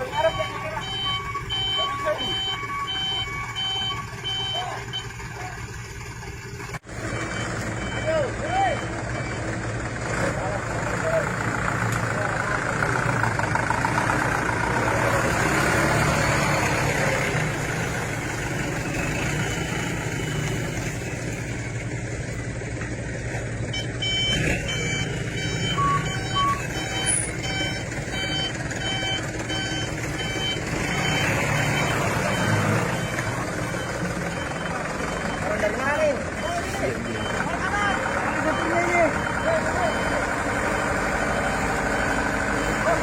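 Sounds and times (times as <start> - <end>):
reversing alarm beeping: 0.0 - 5.4, 7.0 - 9.5, 18.7 - 20.9, 23.7 - 43.0
heavy truck engine running: 0.0 - 43.0.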